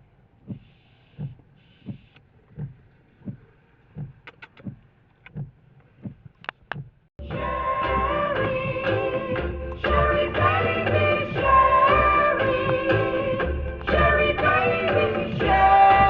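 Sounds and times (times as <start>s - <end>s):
soft thumps: 0.4s - 7.0s
music: 7.2s - 16.0s.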